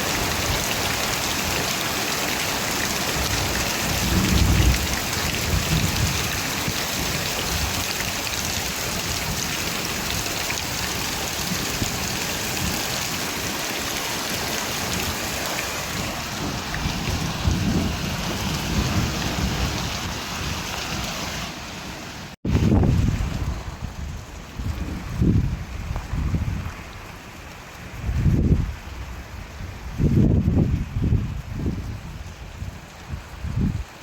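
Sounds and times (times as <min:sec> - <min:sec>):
heavy steady rain: 0:00.0 - 0:34.0
low rolling thunder: 0:03.0 - 0:07.8, 0:14.8 - 0:21.0, 0:22.5 - 0:26.7.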